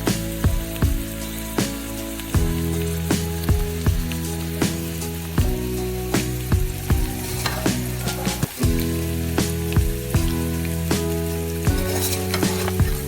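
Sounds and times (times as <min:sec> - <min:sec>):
background music with beat: 0:00.0 - 0:13.0
food sizzling in a pot: 0:00.0 - 0:13.0.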